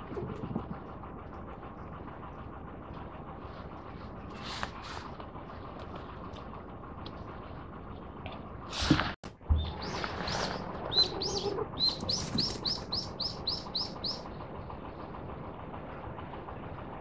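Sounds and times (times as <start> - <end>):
songbird singing: 9.4 - 14.4.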